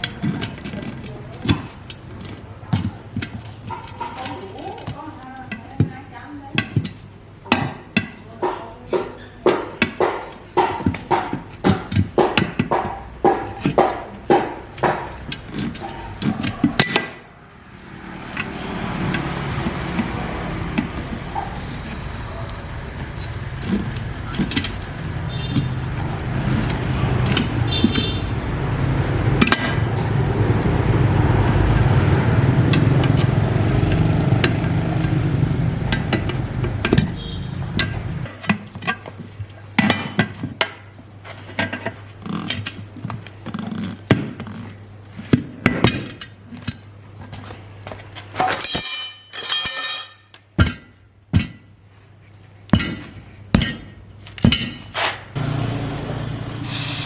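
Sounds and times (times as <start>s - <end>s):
hammer striking metal: 8.4s - 15.4s
engine running: 17.4s - 38.3s, 55.4s - 57.0s.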